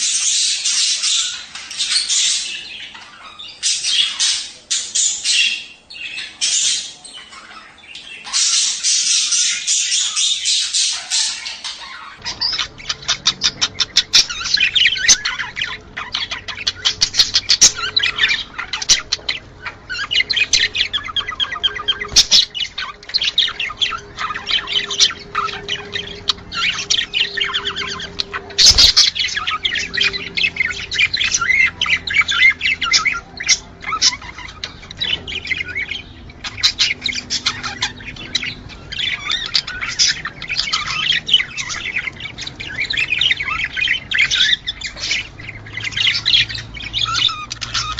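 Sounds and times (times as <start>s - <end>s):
budgerigars chattering and warbling: 0.0s - 47.9s.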